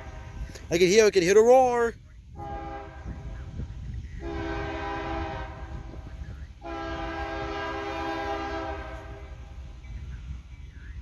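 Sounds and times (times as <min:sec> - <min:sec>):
locomotive air horn blasts: 0:00.0 - 0:00.7, 0:02.3 - 0:03.6, 0:04.2 - 0:09.7.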